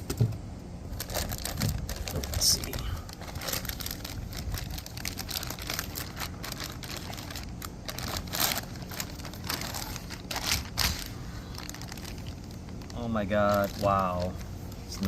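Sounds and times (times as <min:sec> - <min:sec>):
plastic packaging crinkling: 0:00.9 - 0:15.0.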